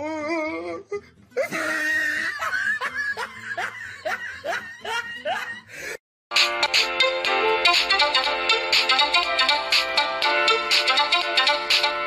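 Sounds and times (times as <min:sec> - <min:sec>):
person laughing: 0:01.4 - 0:06.0.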